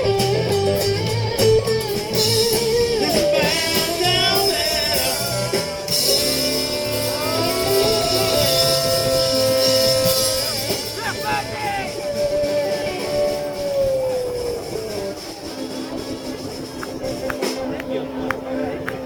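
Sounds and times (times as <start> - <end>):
electric guitar bending notes: 0.0 - 19.0
live blues band playing: 0.0 - 19.0.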